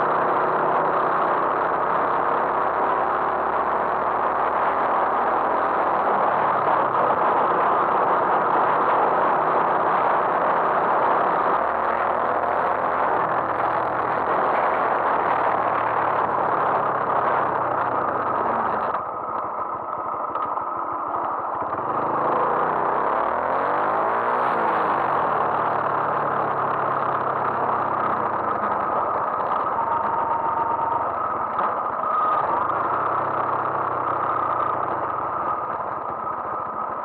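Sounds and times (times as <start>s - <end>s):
wind noise on microphone: 0.0s - 19.1s
motorcycle engine running: 0.0s - 37.0s.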